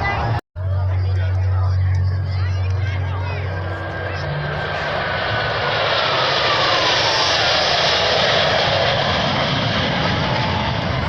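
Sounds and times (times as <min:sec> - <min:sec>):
jet flying past: 0:02.6 - 0:11.0.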